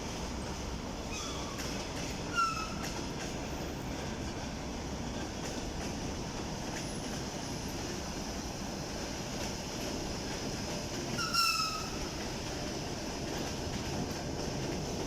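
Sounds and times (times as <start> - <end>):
train rumbling: 0.0 - 15.0
train wheel clicks: 1.4 - 4.4, 5.1 - 8.1, 9.3 - 15.0.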